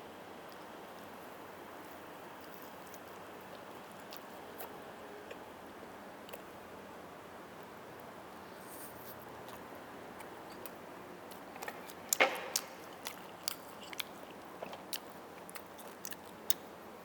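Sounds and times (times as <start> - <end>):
low room hiss: 0.0 - 17.0
chewing clicks: 2.5 - 4.3, 10.2 - 16.7.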